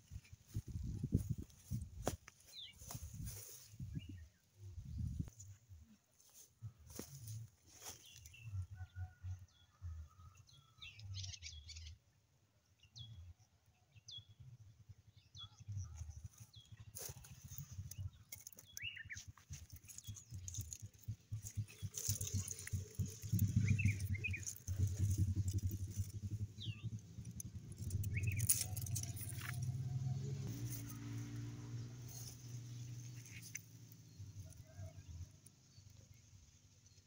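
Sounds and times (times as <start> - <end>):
small birds chirping: 0.0 - 8.6, 15.2 - 37.0
rustling: 17.0 - 26.5
low rumble: 19.9 - 32.8.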